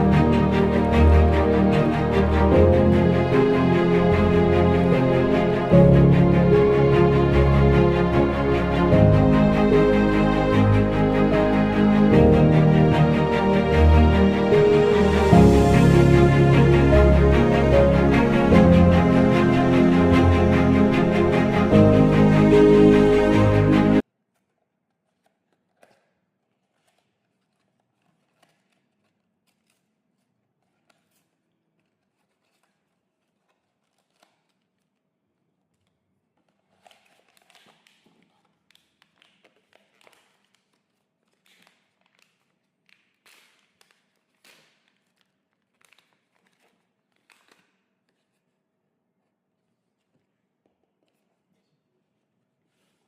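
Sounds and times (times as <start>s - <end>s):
music: 0.0s - 24.0s
packaging crinkling and scratching: 24.3s - 48.6s.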